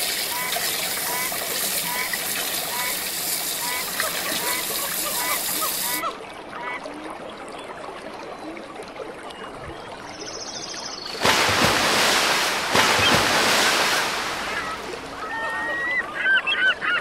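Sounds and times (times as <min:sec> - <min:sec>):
river rapids rushing: 0:11.2 - 0:15.4.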